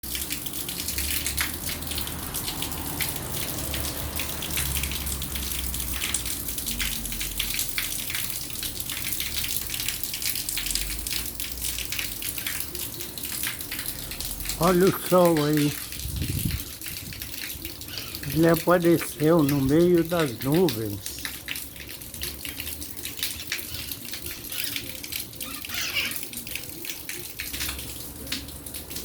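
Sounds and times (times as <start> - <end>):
rain drops ticking: 0.0 - 29.0
steady wash of water: 0.2 - 9.0, 13.5 - 22.0.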